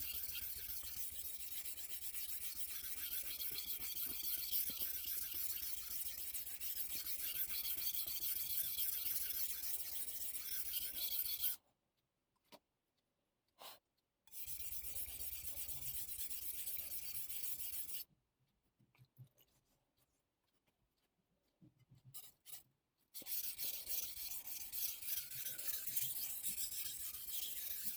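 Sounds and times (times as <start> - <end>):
knife scraping on whetstone: 0.0 - 11.6, 23.2 - 27.9.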